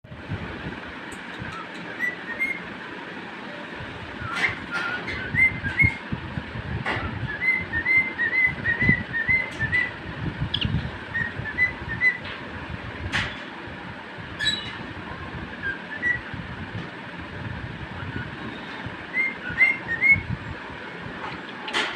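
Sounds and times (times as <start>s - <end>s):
low rumbling noise: 0.0s - 21.8s
cockatiel whistling: 1.5s - 2.6s, 4.2s - 6.0s, 7.0s - 12.3s, 15.6s - 16.3s, 19.1s - 20.3s.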